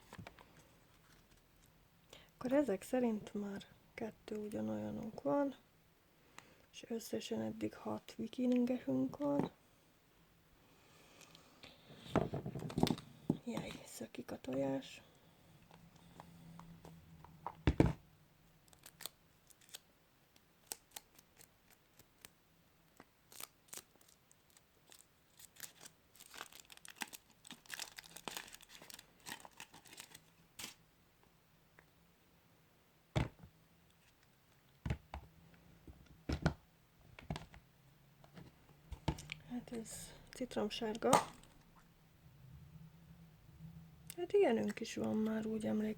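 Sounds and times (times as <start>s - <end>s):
foil wrapper crinkling and tearing: 18.6s - 19.9s, 20.6s - 22.3s, 23.0s - 30.8s.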